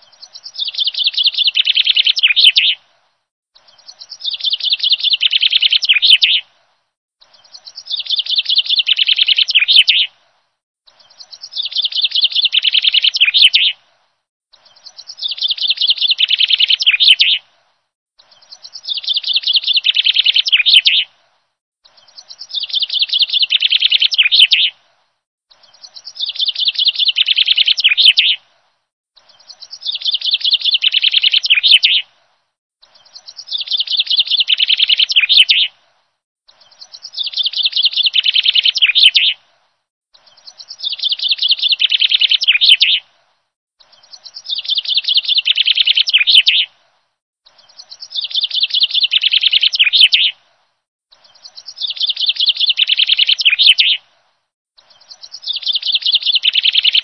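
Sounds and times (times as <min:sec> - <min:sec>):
songbird trilling: 0:00.0 - 0:02.8, 0:03.6 - 0:06.4, 0:07.3 - 0:10.1, 0:10.9 - 0:13.8, 0:14.6 - 0:17.4, 0:18.2 - 0:21.1, 0:21.9 - 0:24.7, 0:25.6 - 0:28.4, 0:29.2 - 0:32.0, 0:33.0 - 0:35.7, 0:36.5 - 0:39.4, 0:40.3 - 0:43.0, 0:43.8 - 0:46.7, 0:47.6 - 0:50.4, 0:51.2 - 0:54.0, 0:54.9 - 0:57.0.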